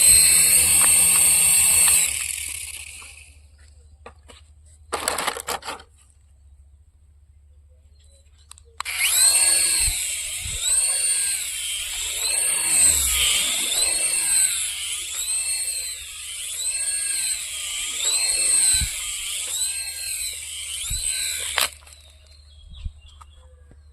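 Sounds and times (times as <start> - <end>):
toy helicopter whirring: 0.0 - 3.5, 8.8 - 22.6.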